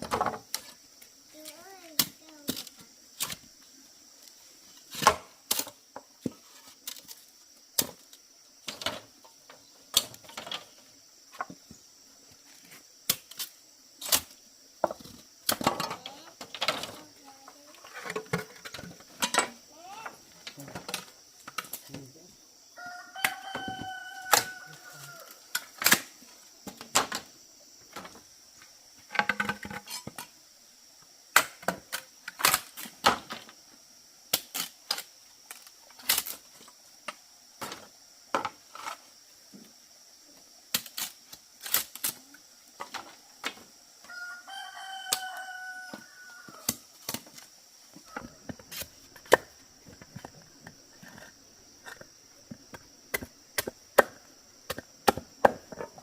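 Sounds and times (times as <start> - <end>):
high insect drone: 0.0 - 56.0
rooster crowing: 22.8 - 25.5, 44.1 - 46.7.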